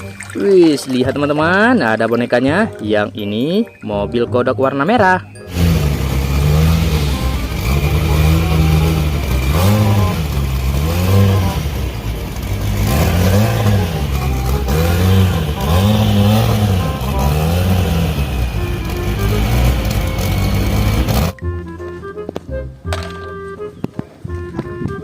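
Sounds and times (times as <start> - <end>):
car engine revving: 5.5 - 21.4.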